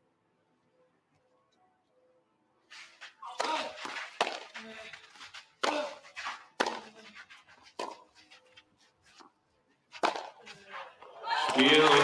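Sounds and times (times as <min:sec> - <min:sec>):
tennis ball hit by racket: 0:03.3 - 0:04.6, 0:05.6 - 0:07.0, 0:07.7 - 0:08.2, 0:09.9 - 0:10.7.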